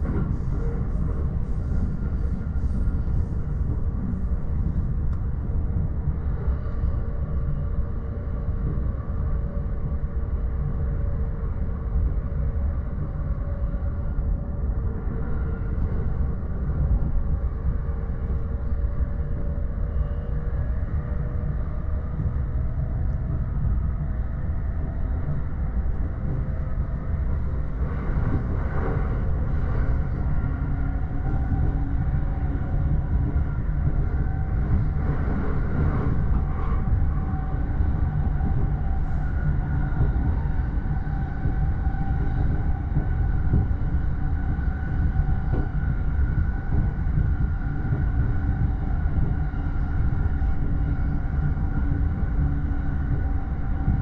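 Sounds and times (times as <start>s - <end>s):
train wheels rumbling on rails: 0.0s - 6.2s, 22.2s - 54.0s
faint whining tones: 0.0s - 54.0s.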